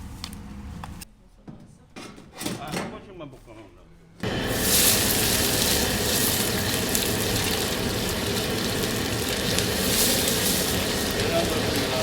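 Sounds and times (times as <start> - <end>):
wok station hiss: 4.2 - 12.0.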